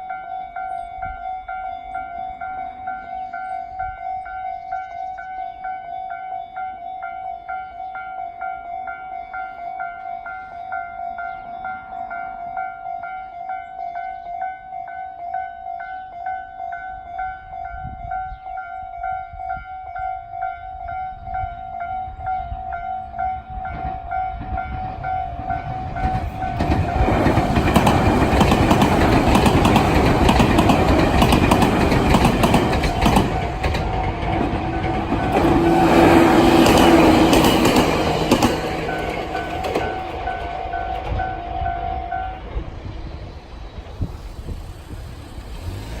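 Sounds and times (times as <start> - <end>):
level crossing warning bell ringing: 0.0 - 43.1
electric train rumbling: 0.0 - 46.0
wheels clacking on rail joints: 23.7 - 46.0.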